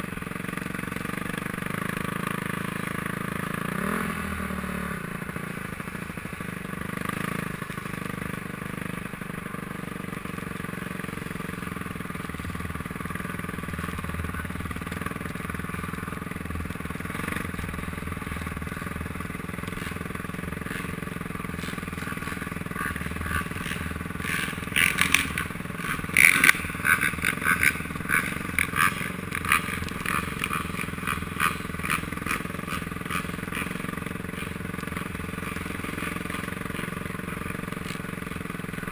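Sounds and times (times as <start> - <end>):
motocross engine running: 0.0 - 38.9.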